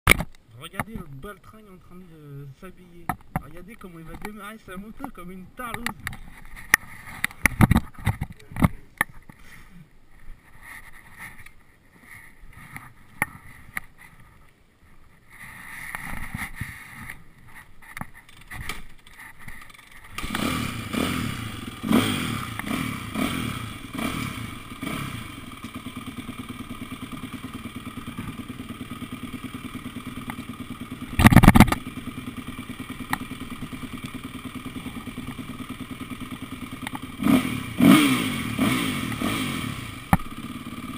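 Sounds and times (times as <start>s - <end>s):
motorcycle engine revving and idling: 19.1s - 40.9s.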